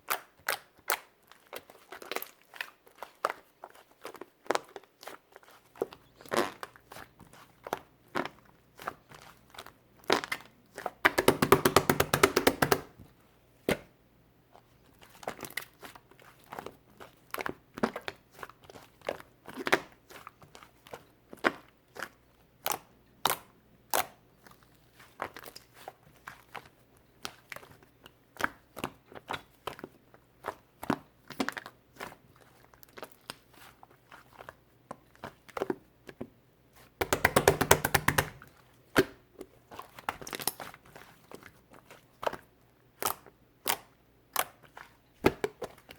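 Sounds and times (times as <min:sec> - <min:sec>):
clay crackling and popping: 0:10.1 - 0:13.0, 0:37.0 - 0:40.8.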